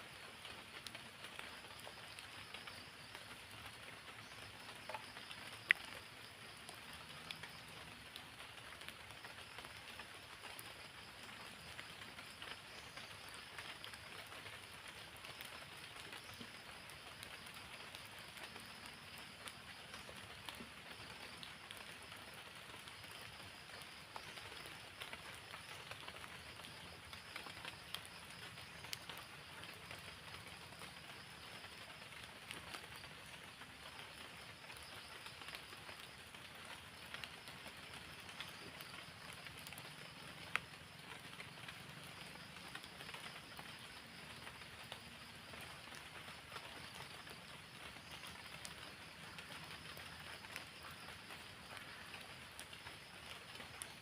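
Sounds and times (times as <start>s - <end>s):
light rain hiss: 0.0s - 54.0s
sharp drip ticks: 0.4s - 33.0s.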